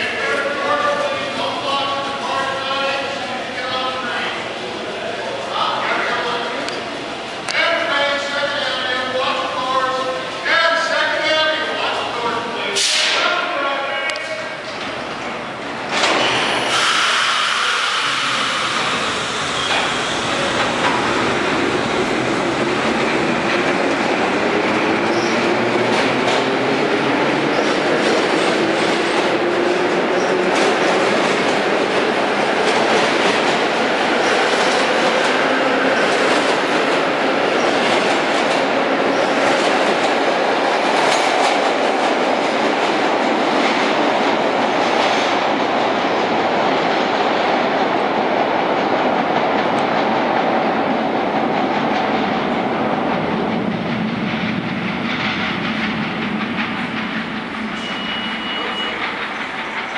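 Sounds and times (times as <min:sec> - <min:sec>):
subway train rumbling: 0:00.0 - 0:59.9
wheels clacking over rail joints: 0:53.4 - 0:59.9
wheel squeal: 0:57.7 - 0:59.4.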